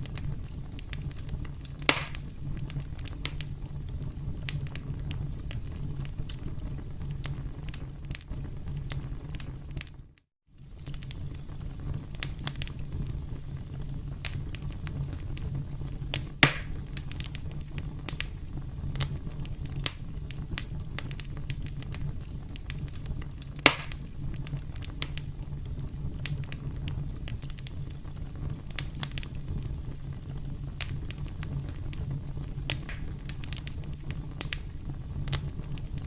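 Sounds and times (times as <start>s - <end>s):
campfire crackling: 0.0s - 36.0s
loud sharp pops: 1.8s - 2.3s, 16.4s - 16.8s, 23.6s - 24.1s, 32.7s - 33.6s.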